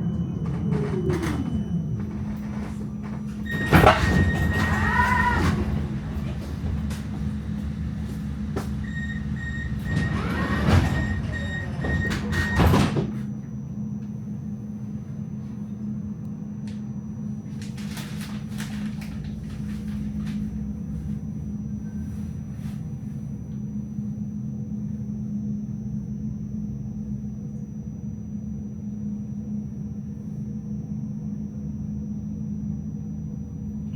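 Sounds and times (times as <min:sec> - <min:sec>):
tram doors knocking shut: 0:00.0 - 0:13.3
tram electrical hum: 0:00.0 - 0:33.9
high warning beeps: 0:08.2 - 0:12.7.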